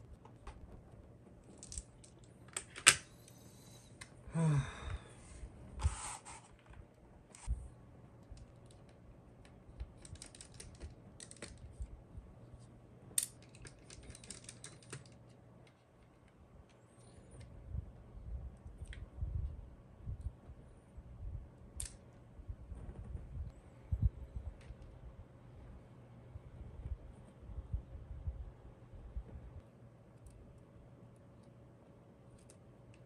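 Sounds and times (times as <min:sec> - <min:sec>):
plastic and metal parts clicking: 0:13.2 - 0:15.8.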